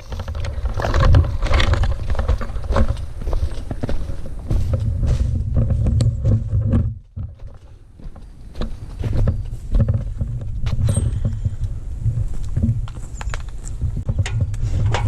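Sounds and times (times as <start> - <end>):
heavy low rumble: 8.9 - 15.0.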